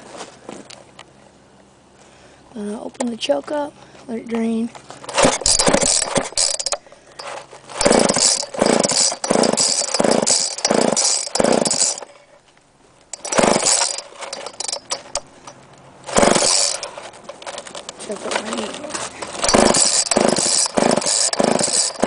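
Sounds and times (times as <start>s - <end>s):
chainsaw pull-start bursts: 5.1s - 12.3s, 13.1s - 15.5s, 16.1s - 17.8s, 18.4s - 22.0s.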